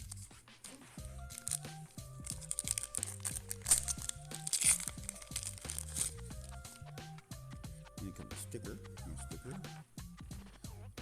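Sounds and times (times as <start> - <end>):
wax paper crinkling and tearing: 0.0 - 6.8
background music: 0.0 - 11.0.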